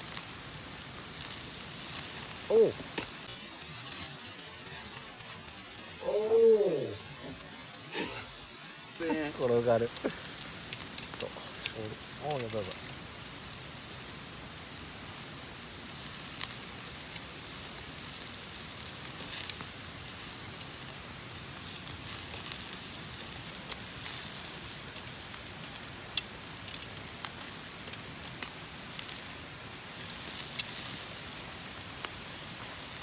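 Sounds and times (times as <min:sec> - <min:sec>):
campfire crackling and hissing: 0:00.0 - 0:33.0.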